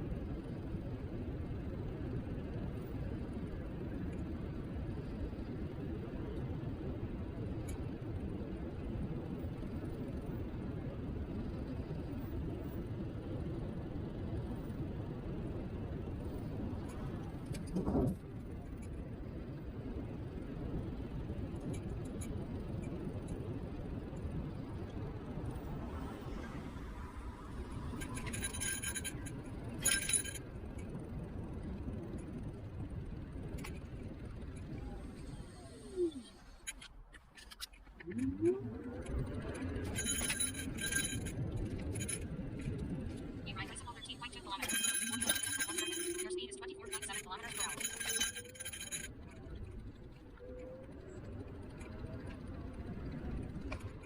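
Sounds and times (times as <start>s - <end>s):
scooter tyre and road rumble: 0.0s - 54.0s
wind on microphone: 13.4s - 28.6s
metallic rattling and clinking: 28.0s - 30.9s, 39.4s - 43.2s, 44.0s - 54.0s.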